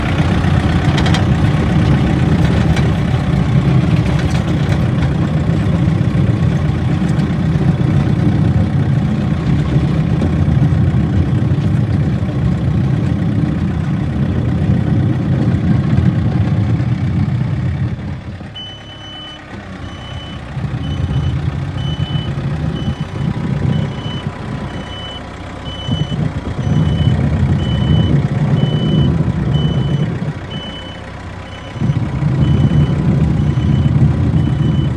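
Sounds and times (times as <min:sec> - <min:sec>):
diesel engine running under load: 0:00.0 - 0:34.9
reversing alarm beeping: 0:18.6 - 0:34.9.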